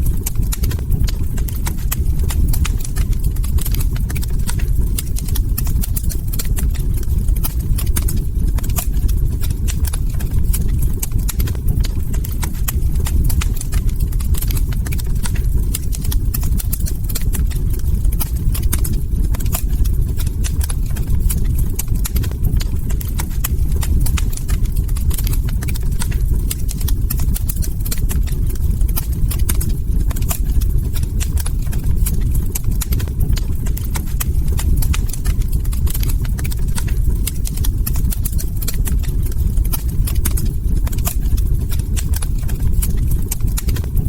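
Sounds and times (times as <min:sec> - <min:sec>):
steady low rumble: 0:00.0 - 0:44.0
wood fire crackling: 0:00.0 - 0:44.0.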